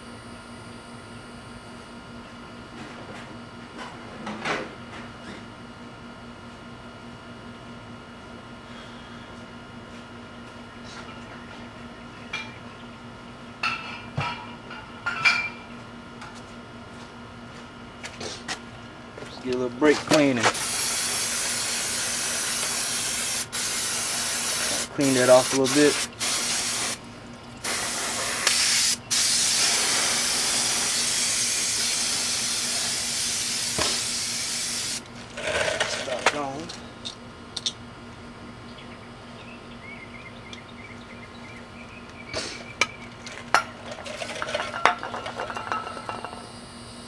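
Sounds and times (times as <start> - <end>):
steady low hum: 0.0 - 35.4
aerosol can spraying: 20.6 - 27.0, 27.6 - 35.0.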